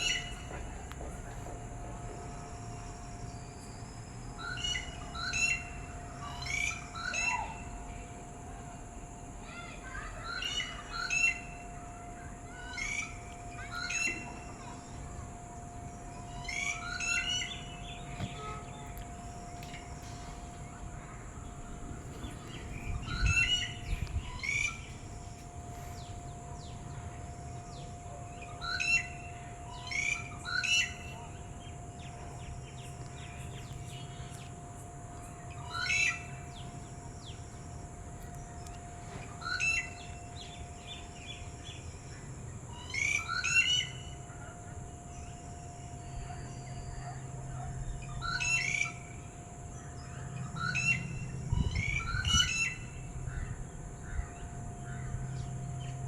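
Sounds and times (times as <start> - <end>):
bird singing whistled notes: 0.0 - 0.5, 2.3 - 7.6, 16.0 - 34.4, 35.2 - 37.6, 38.4 - 44.2, 49.8 - 53.1.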